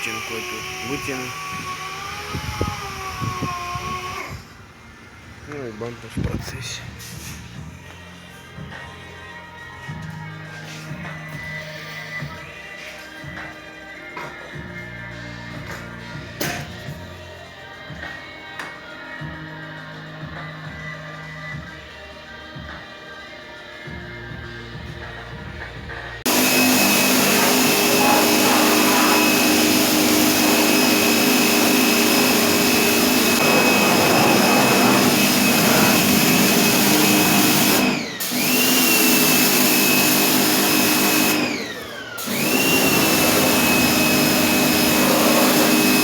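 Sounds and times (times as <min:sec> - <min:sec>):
power sander whining: 0:00.0 - 0:04.6, 0:26.3 - 0:46.0.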